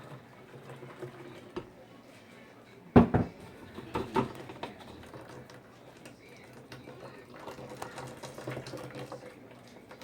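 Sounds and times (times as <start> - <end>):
light ticks of utensils: 4.3 - 10.0.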